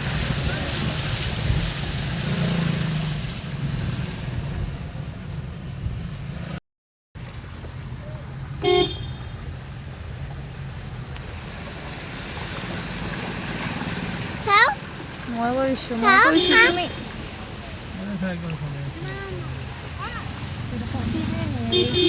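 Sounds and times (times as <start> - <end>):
wind noise on microphone: 0.0 - 6.4
low engine rumble: 7.2 - 22.0.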